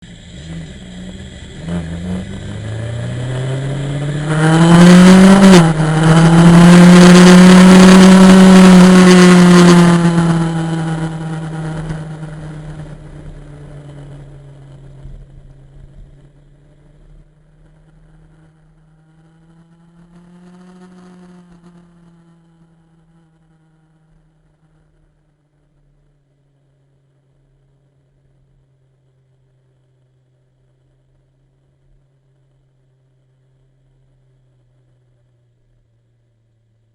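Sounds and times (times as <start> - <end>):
motorcycle engine revving: 0.0 - 25.4.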